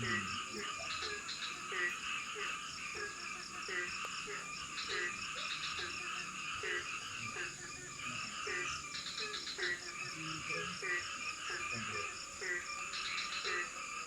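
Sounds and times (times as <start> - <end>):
frogs calling in chorus: 0.0 - 14.0.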